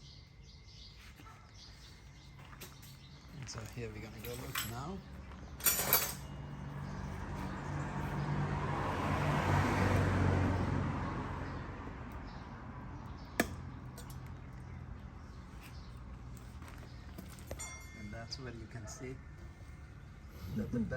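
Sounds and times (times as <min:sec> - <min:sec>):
vehicle passing by: 0:06.2 - 0:17.1.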